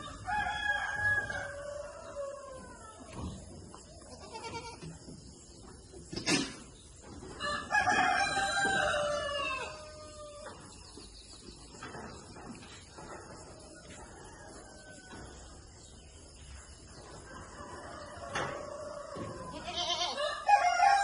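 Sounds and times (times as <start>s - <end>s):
rooster crowing: 0.0s - 3.1s, 7.4s - 10.6s, 17.5s - 21.0s.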